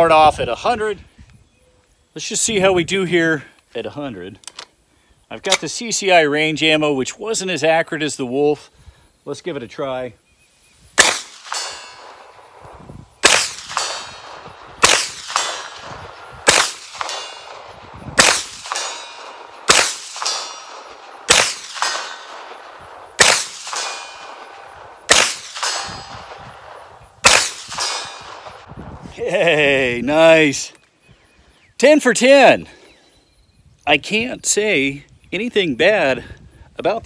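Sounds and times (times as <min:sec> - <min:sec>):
steel target ringing: 0:11.0 - 0:12.5, 0:13.2 - 0:28.7
gunshots: 0:11.0 - 0:28.8.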